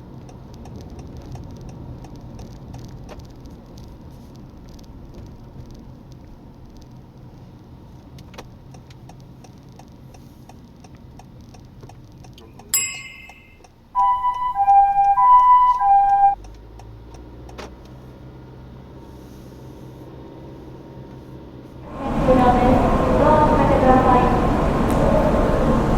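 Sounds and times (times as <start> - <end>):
turn signal relay ticking: 0.0 - 18.0
engine and road hum: 0.0 - 25.9
electronic tone melody: 12.8 - 16.4
short electronic ping: 12.8 - 16.4.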